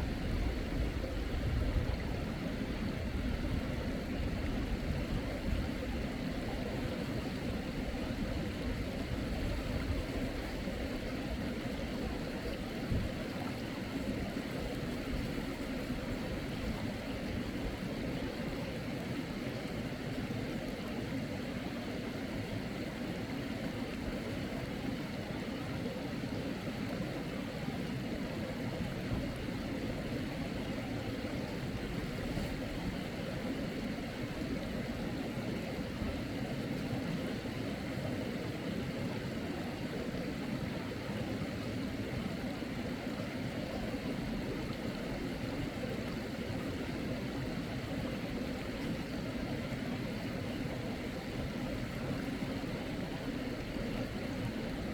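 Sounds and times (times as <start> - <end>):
mountain stream flowing: 0.0 - 54.9.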